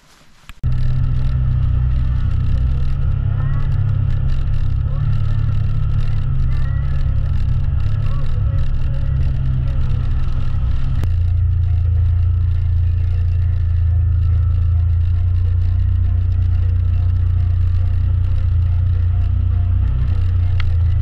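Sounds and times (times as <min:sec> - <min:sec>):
utility vehicle engine droning: 0:00.0 - 0:21.0.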